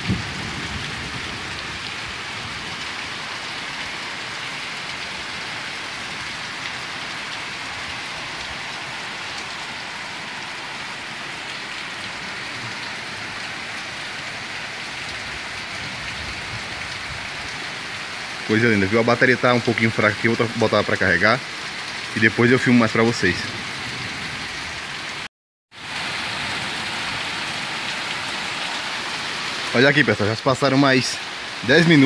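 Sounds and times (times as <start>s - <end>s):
heavy rain falling: 0.0s - 32.0s
water streaming off roof eaves: 0.0s - 32.0s.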